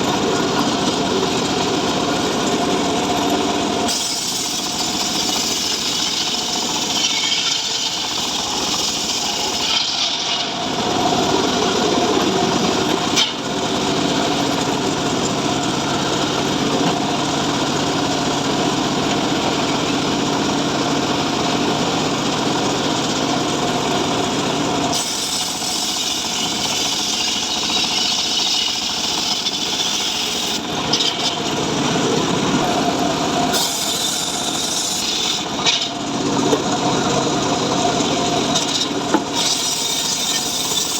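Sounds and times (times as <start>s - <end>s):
chainsaw cutting wood: 3.8s - 12.0s, 24.9s - 36.0s, 38.5s - 40.9s.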